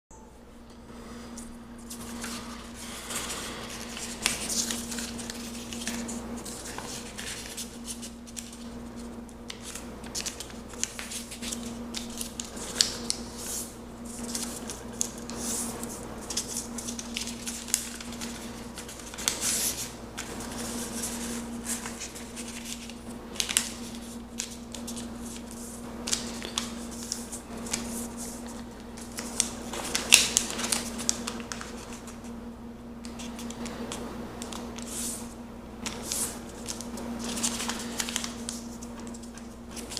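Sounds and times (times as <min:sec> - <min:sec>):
steady low hum: 0:00.1 - 0:39.9
paper being folded and creased: 0:01.8 - 0:32.3, 0:33.0 - 0:33.6, 0:34.4 - 0:39.9.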